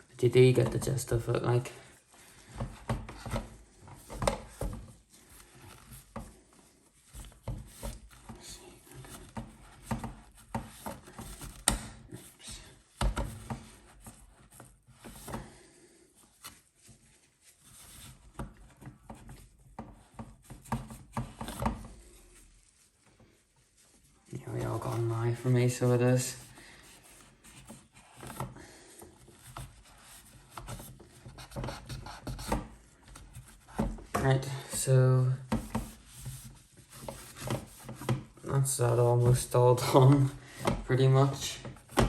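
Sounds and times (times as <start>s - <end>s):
cloth scrubbing: 16.3s - 42.0s.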